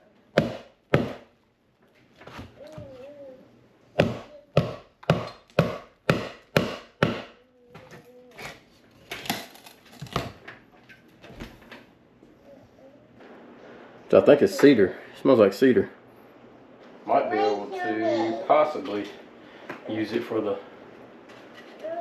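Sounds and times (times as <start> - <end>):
hammer striking wood: 0.3 - 1.3, 4.0 - 7.4.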